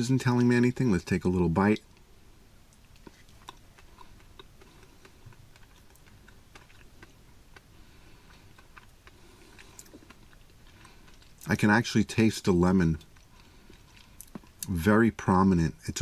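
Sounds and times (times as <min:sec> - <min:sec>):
person chewing cake: 0:02.7 - 0:14.8.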